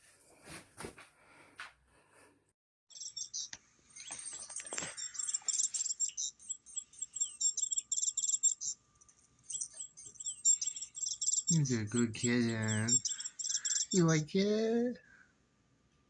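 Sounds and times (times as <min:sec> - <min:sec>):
bird-like chirping: 0:02.9 - 0:14.5.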